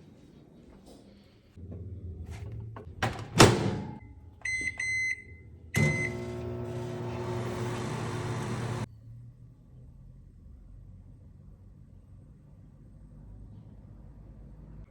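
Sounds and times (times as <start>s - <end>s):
short keypad beeps: 4.4s - 6.4s
microwave door shutting with a thud: 5.8s - 8.8s
microwave oven humming: 5.8s - 8.9s.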